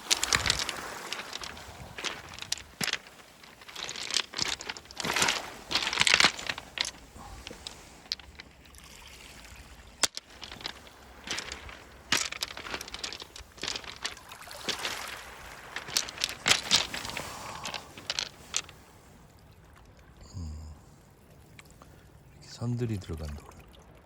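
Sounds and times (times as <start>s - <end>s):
pebbles clacking and crunching: 0.0s - 8.8s, 9.6s - 18.8s
water washing through stones: 0.0s - 19.0s.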